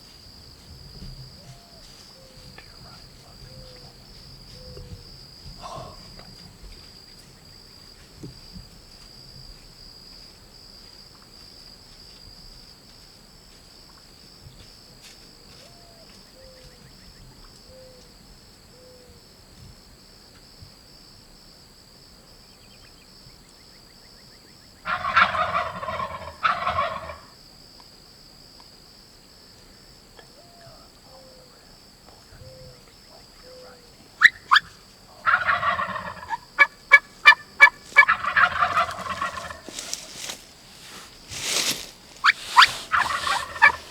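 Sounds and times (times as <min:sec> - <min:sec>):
turkeys gobbling: 0:05.6 - 0:06.3, 0:24.9 - 0:27.4, 0:32.2 - 0:43.9.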